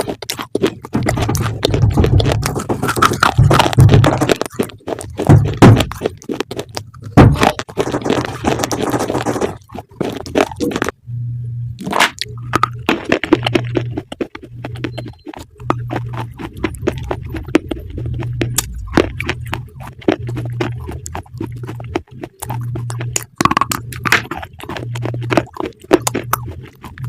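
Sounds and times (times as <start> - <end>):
crunchy food being chewed: 0.0 - 11.0, 11.8 - 27.0
pulsing low hum: 0.0 - 27.0.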